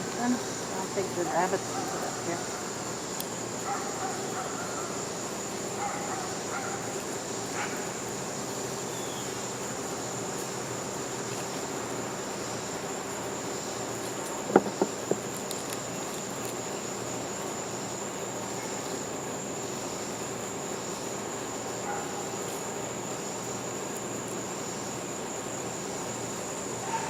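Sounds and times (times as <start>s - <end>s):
crickets chirping: 0.0s - 27.0s
sharp knocks: 14.5s - 15.3s.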